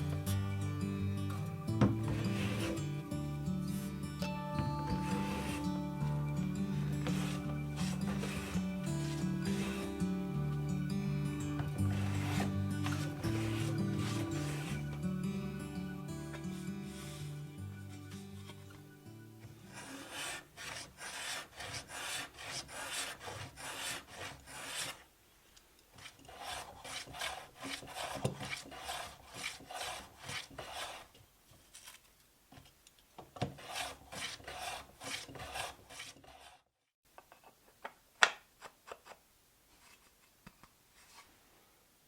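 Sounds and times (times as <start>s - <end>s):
tool scraping wood: 1.8s - 3.0s, 4.7s - 6.0s, 6.7s - 10.6s, 11.4s - 15.1s, 16.3s - 17.5s, 19.4s - 25.1s, 25.9s - 32.0s, 33.4s - 36.7s.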